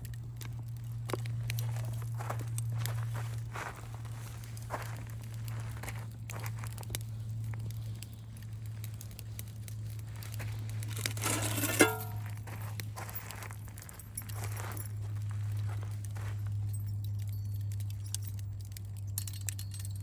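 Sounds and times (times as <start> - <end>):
crinkling and crackling: 0.0 - 20.0
low hum: 0.0 - 20.0
ringing clink: 19.1 - 20.0.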